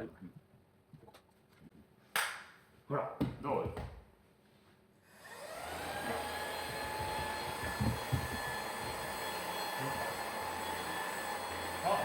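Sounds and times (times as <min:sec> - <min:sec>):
vacuum cleaner motor whining: 0:05.1 - 0:12.0
low bumps: 0:06.6 - 0:09.2.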